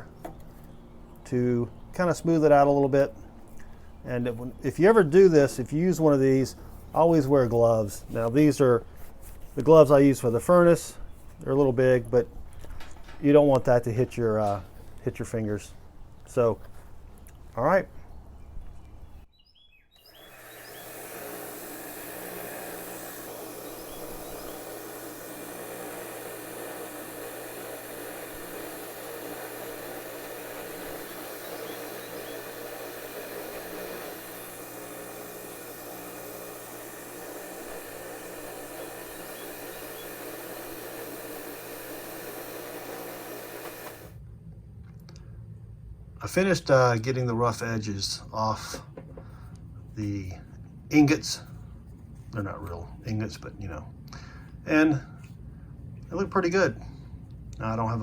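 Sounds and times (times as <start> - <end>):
bench grinder grinding metal: 20.0 - 44.2.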